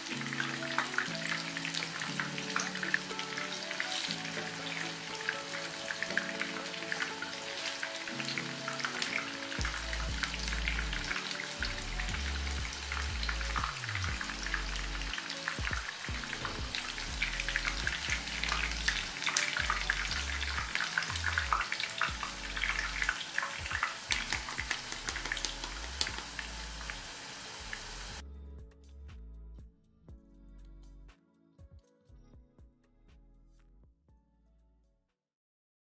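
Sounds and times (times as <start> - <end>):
food frying in hot oil: 0.0 - 28.2.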